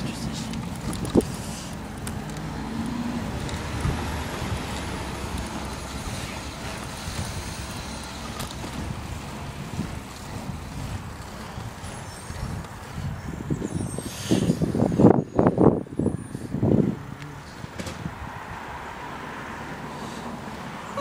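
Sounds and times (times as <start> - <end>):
garbage truck engine running: 0.0 - 13.2.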